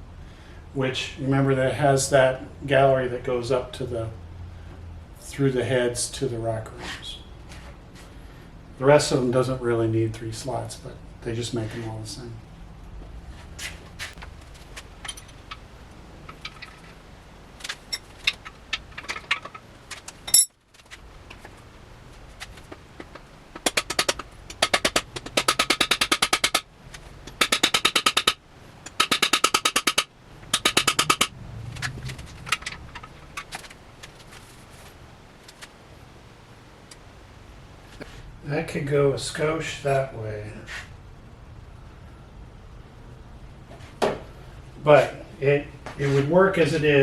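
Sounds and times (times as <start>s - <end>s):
hammer striking metal: 29.0s - 31.3s.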